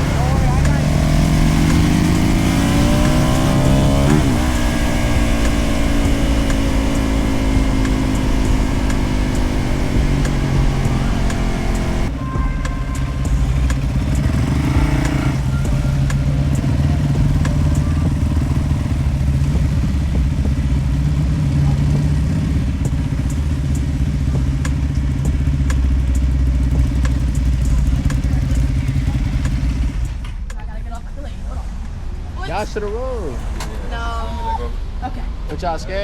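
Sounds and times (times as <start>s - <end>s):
motorcycle engine running: 0.0s - 30.5s.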